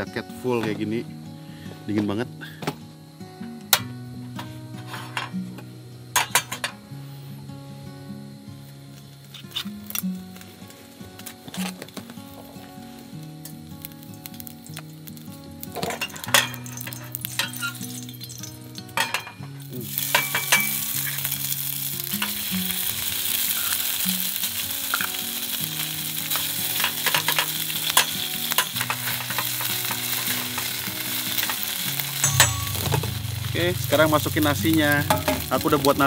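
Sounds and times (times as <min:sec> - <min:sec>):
meat sizzling in a pan: 0:09.2 - 0:36.0.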